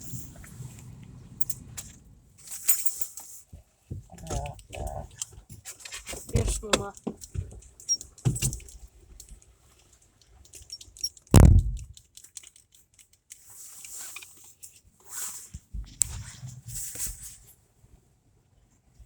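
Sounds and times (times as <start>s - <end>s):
clicks and rustling in a car: 0.3s - 15.0s
loud dull thump: 11.4s - 11.9s.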